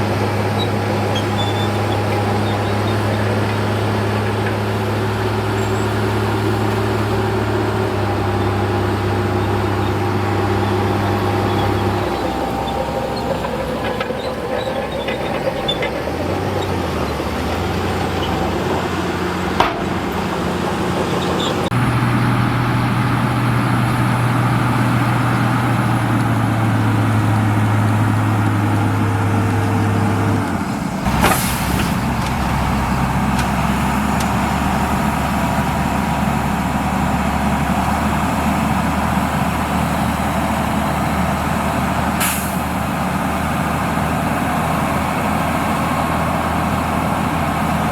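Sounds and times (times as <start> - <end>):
heavy diesel engine running: 0.0 - 47.9
short air hisses: 31.1 - 32.0, 42.2 - 42.7.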